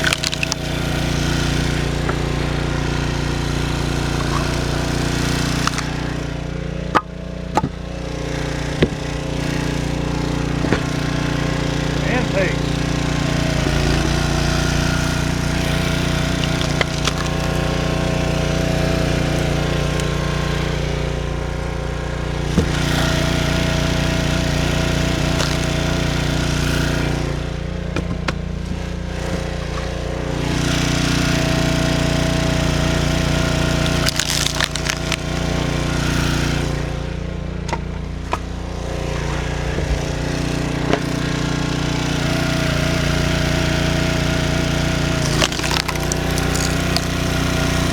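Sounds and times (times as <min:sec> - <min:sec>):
wood cracking and splintering: 0:00.0 - 0:26.9, 0:32.1 - 0:35.8, 0:44.7 - 0:47.9
log splitter engine running: 0:00.0 - 0:47.9.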